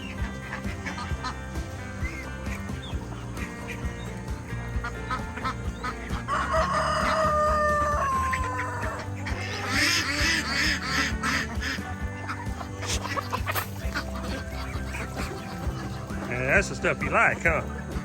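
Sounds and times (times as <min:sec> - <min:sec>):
ducks geese and chickens calling: 0:00.0 - 0:18.0
rooster crowing: 0:06.3 - 0:09.0.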